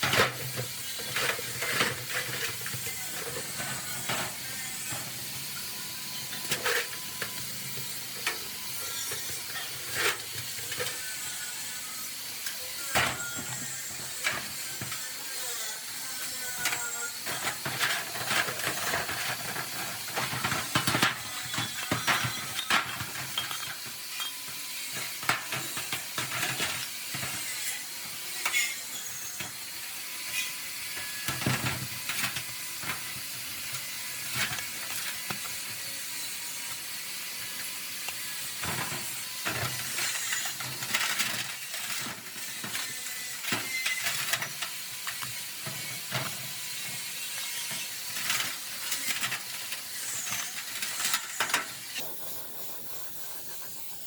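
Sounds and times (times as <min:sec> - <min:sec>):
tools clicking and knocking: 0:16.6 - 0:27.4
steady hiss: 0:51.9 - 0:54.0.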